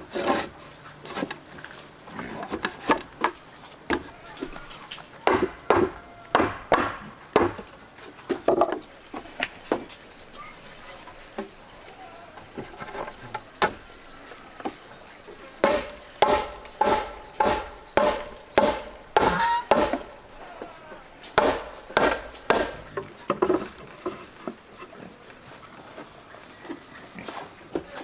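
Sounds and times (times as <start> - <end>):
hand tool striking wood: 2.5 - 9.9, 15.6 - 20.2, 21.3 - 23.7.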